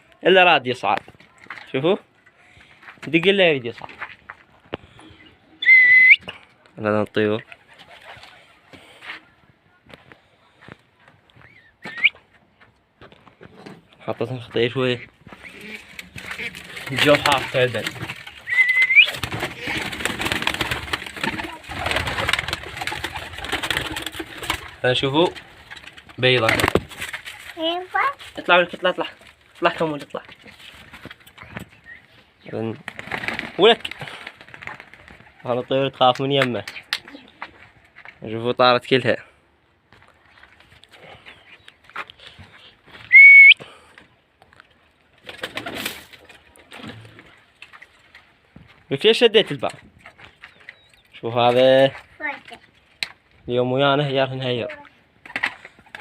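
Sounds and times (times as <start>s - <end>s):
rising whistle: 5.6s - 6.2s, 18.5s - 19.2s, 43.1s - 43.6s
rustling noise: 12.2s - 32.4s
pigeons cooing: 15.2s - 24.8s.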